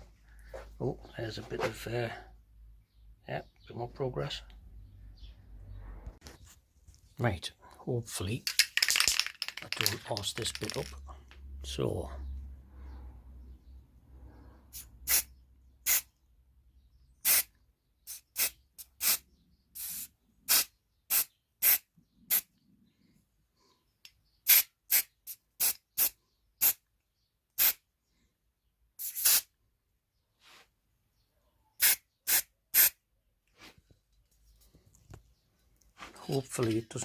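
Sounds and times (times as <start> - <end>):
spray can hissing: 19.8 - 22.4, 29.0 - 29.5, 31.8 - 33.0.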